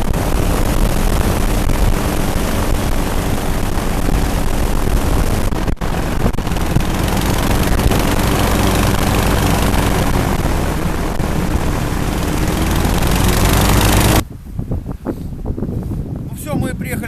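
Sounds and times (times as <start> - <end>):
aerosled engines and propellers: 0.0 - 16.2
rush of air: 0.0 - 16.3.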